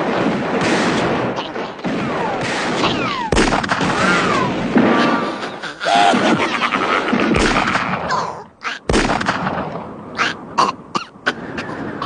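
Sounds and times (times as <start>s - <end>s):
gunshots: 0.0s - 9.9s
sharp gunshot crack: 0.2s - 5.2s, 7.1s - 8.1s, 8.9s - 9.8s.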